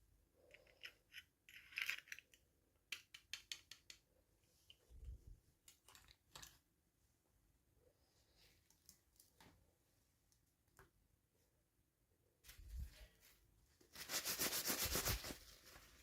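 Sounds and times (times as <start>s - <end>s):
plastic toy pieces clicking: 0.6s - 4.0s.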